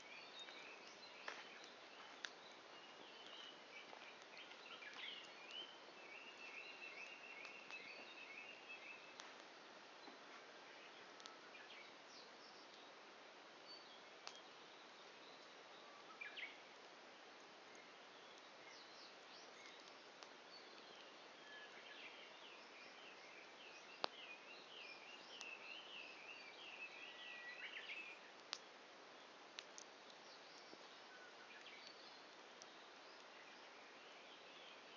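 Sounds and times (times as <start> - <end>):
bird singing: 0.0 - 9.2, 13.7 - 16.6, 17.7 - 28.3, 30.0 - 34.9
faint steady hiss: 0.0 - 34.9
wood fire popping: 0.4 - 5.7, 9.1 - 9.6, 28.3 - 31.0.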